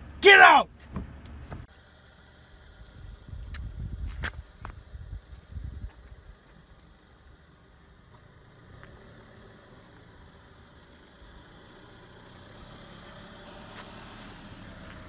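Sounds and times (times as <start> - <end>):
car engine idling: 0.0 - 3.5, 6.0 - 13.6.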